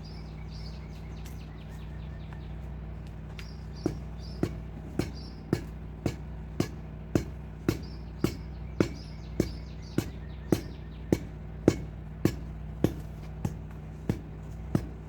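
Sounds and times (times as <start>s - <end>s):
faint bird chirps: 0.0s - 4.5s
steady low hum: 0.0s - 15.0s
sharp knocks: 3.8s - 15.0s.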